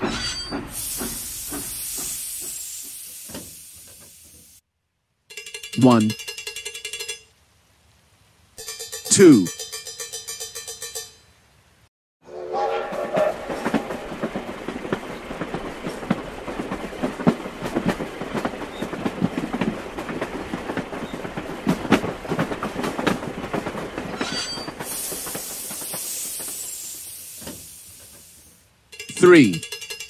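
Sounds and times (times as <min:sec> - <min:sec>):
train wheels clattering and squealing: 0:00.0 - 0:04.4, 0:12.6 - 0:28.3, 0:28.9 - 0:30.0
steady high hiss: 0:24.8 - 0:29.6.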